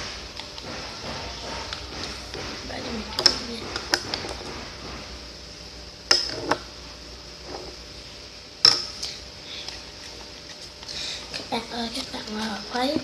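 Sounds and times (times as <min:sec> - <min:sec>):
stirrer knocking container: 0:00.6 - 0:05.0
slime being stirred: 0:08.9 - 0:13.0.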